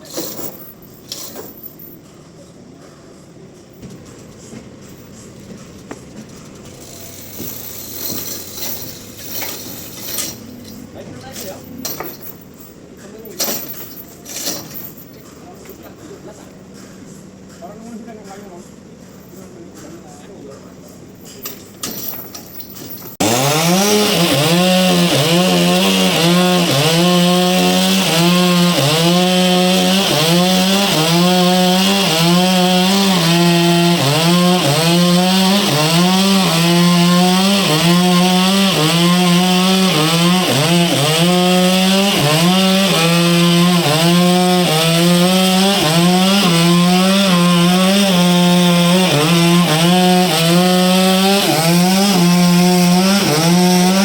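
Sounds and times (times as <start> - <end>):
chainsaw cutting log: 23.2 - 54.0.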